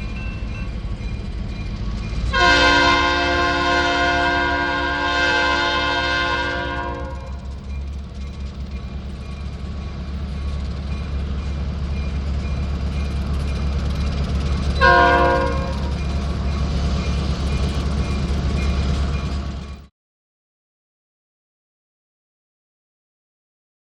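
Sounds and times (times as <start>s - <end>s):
crossing bell dinging: 0.0s - 4.8s, 6.4s - 19.8s
train rumbling: 0.0s - 19.9s
train air horn blast: 2.3s - 7.4s, 14.8s - 16.0s.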